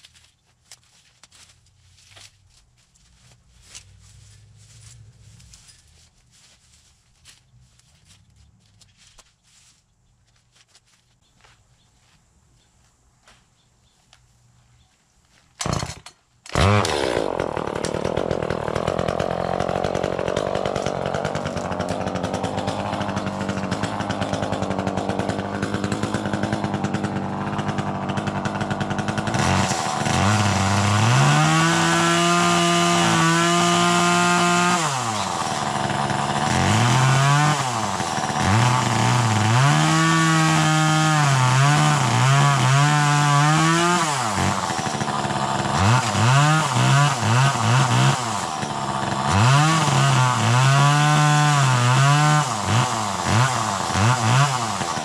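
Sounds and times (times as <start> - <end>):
chainsaw engine idling and revving: 15.6 - 55.0.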